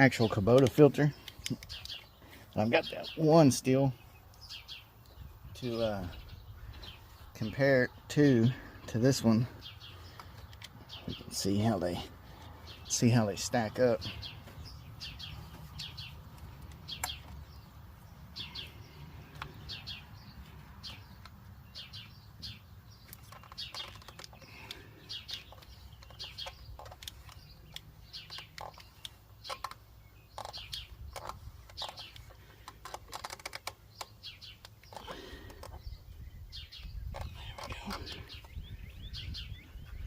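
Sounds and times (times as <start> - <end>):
small birds chirping: 0.0 - 40.0
sharp clicks: 0.2 - 2.1, 15.1 - 17.4, 19.3 - 35.8.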